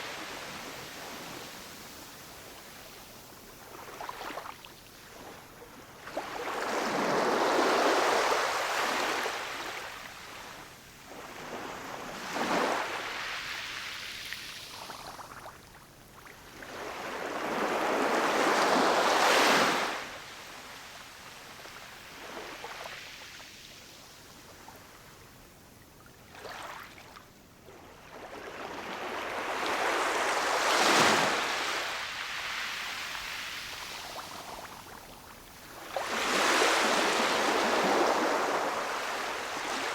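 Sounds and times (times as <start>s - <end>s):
ocean waves breaking on shore: 35.8s - 39.9s.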